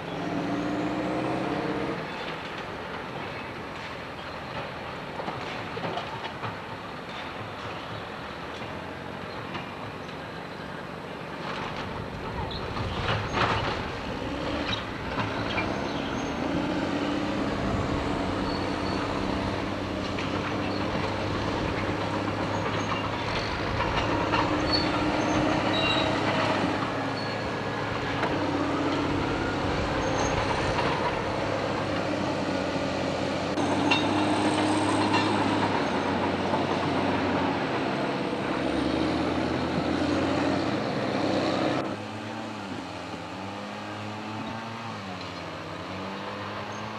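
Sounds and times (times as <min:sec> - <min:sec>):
locomotive engine drone: 0:00.0 - 0:46.9
rolling train noise: 0:00.0 - 0:46.9.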